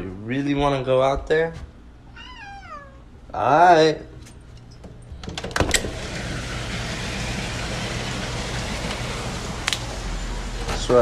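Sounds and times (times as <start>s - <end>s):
sliding glass door opening: 5.2s - 11.0s
rain hissing: 6.0s - 10.7s.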